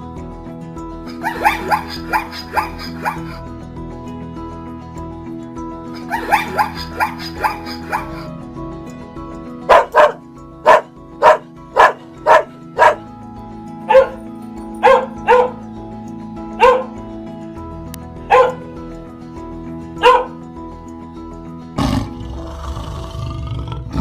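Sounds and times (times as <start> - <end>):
background music: 0.0 - 24.0
dog barking: 1.2 - 3.4, 6.0 - 8.3, 9.7 - 13.0, 13.9 - 14.2, 14.8 - 15.6, 16.6 - 17.0, 18.3 - 18.6, 20.0 - 20.4.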